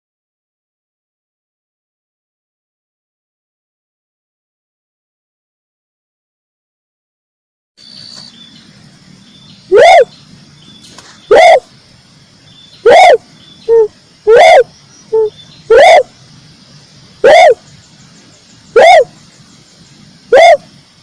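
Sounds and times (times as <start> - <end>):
dove calling: 7.8 - 11.8, 12.4 - 21.0.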